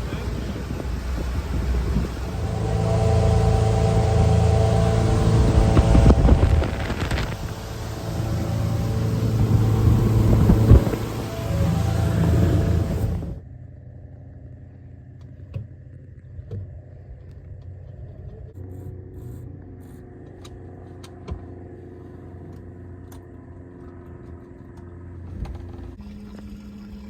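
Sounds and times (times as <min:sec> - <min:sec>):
motor humming: 0:00.0 - 0:13.4.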